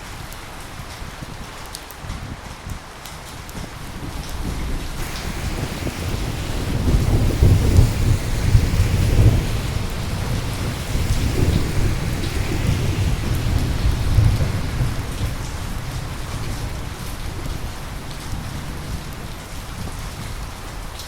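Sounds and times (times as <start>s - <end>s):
steady rain: 0.0s - 21.0s
rolling thunder rumble: 3.8s - 20.5s.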